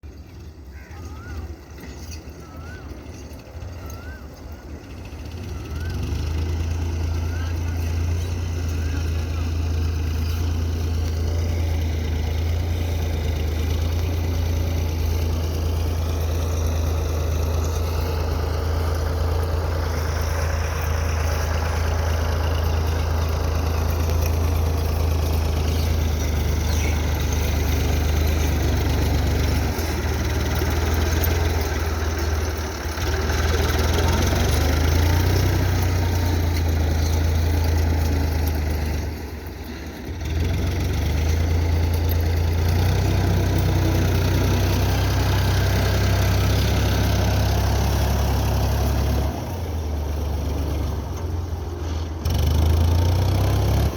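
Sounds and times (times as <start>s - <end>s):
tractor engine running: 0.0s - 53.9s.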